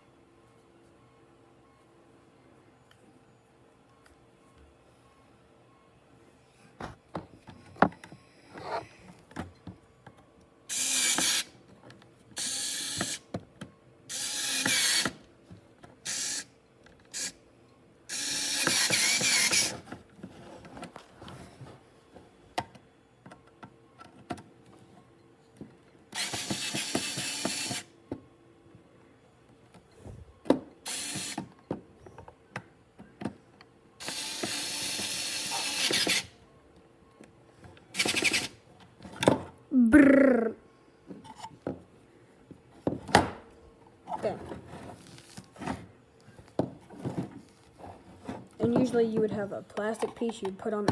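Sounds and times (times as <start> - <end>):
electric screwdriver running: 10.7 - 11.5, 14.1 - 15.1, 18.1 - 19.7, 26.2 - 27.8, 34.0 - 36.3.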